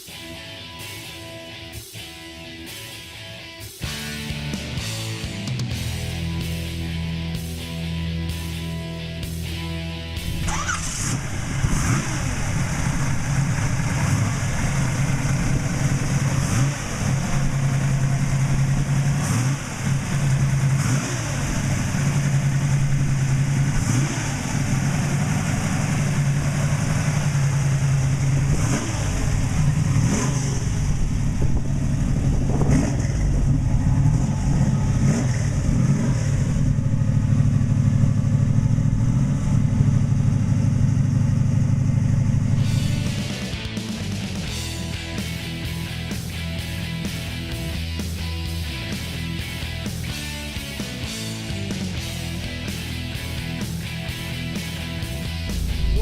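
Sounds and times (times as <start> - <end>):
car engine revving: 9.4 - 56.0.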